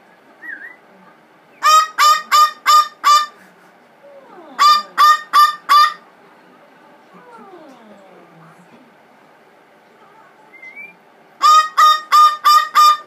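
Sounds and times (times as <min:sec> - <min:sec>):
parrot squawking harshly: 0:01.6 - 0:03.4, 0:04.6 - 0:06.0, 0:11.4 - 0:13.0.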